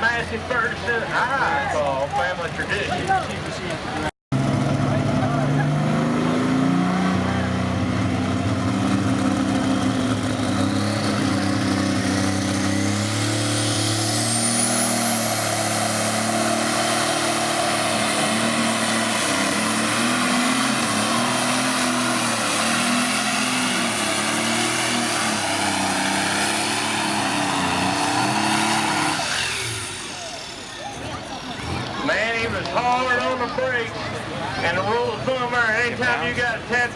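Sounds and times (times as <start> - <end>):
diesel engine running hard: 0.0 - 36.9
high turbo whine: 4.4 - 32.2.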